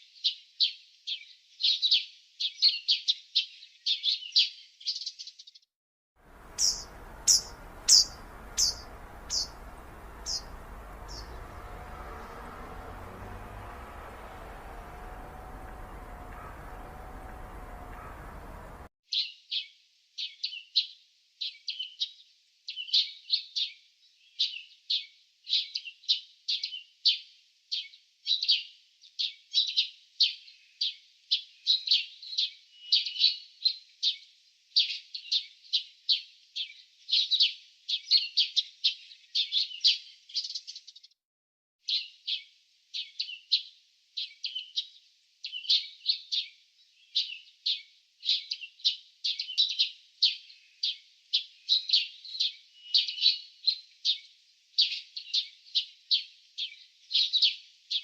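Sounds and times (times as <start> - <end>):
small songbird chirping: 0.1 - 5.6, 6.3 - 19.4, 34.8 - 41.1, 41.8 - 58.0.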